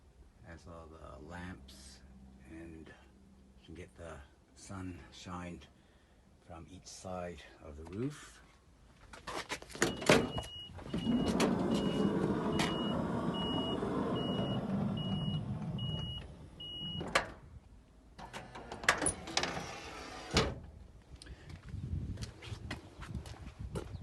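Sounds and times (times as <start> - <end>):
door clunking: 9.8 - 17.5
sliding door motor: 10.8 - 17.2, 18.2 - 20.6.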